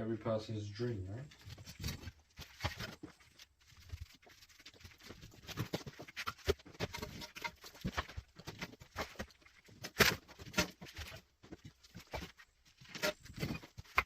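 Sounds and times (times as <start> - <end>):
bricks knocking and clattering: 5.1 - 14.0.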